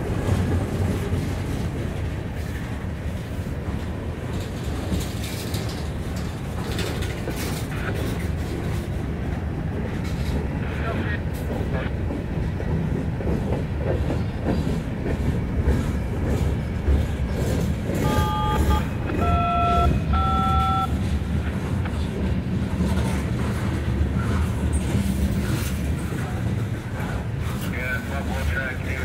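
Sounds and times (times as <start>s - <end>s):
train wheels rumbling on rails: 0.0s - 29.0s
short steady tones: 18.0s - 20.9s.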